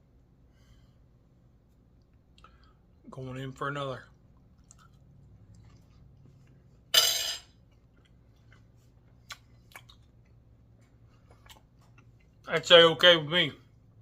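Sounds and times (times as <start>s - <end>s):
quiet chewing: 4.0s - 6.9s, 7.6s - 12.5s.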